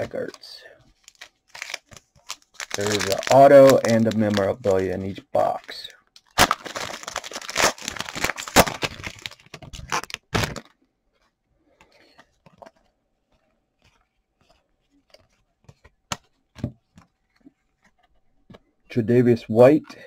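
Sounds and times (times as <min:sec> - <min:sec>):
wrapper tearing and crinkling: 0:01.0 - 0:04.7, 0:06.3 - 0:10.7.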